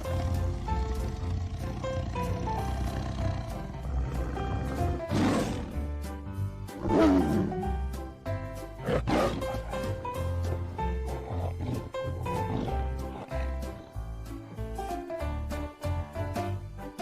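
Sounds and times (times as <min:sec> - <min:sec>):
tiger roaring: 0:00.0 - 0:05.8, 0:06.8 - 0:07.7, 0:08.8 - 0:09.8
background music: 0:00.0 - 0:17.0.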